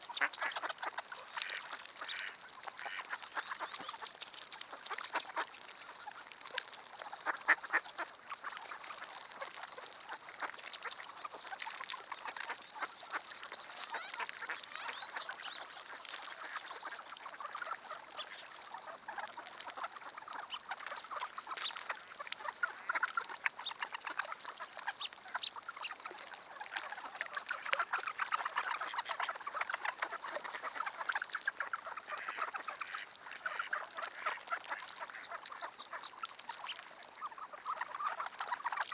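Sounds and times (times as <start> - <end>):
flock of ducks quacking: 0.0 - 38.9.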